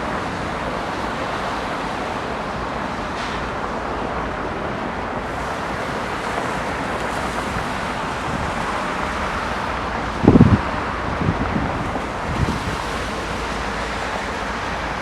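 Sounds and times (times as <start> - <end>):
distant traffic: 0.0 - 15.0
wind buffeting microphone: 5.0 - 15.0.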